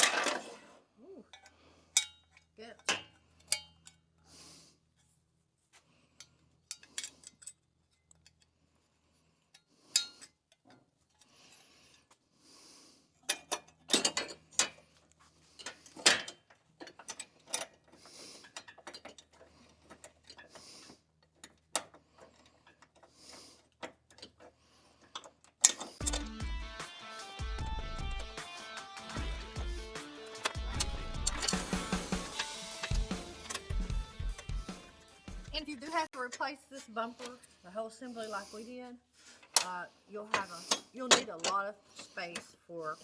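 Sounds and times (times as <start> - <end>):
clicks and knocks of metal and plastic: 13.2 - 15.0, 15.6 - 26.4, 30.3 - 34.6
ratchet rasping: 15.6 - 26.5, 30.2 - 34.8.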